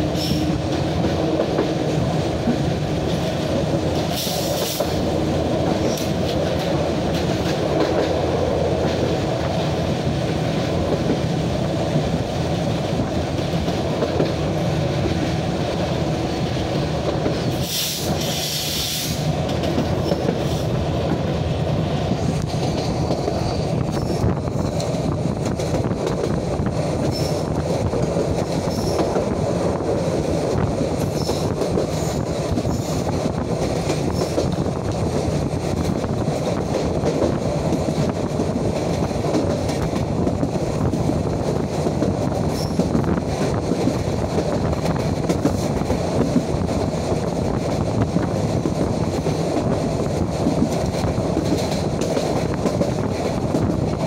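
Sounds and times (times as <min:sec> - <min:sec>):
train wheels rumbling on rails: 0:00.0 - 0:54.0
short burst of hiss: 0:17.6 - 0:19.3.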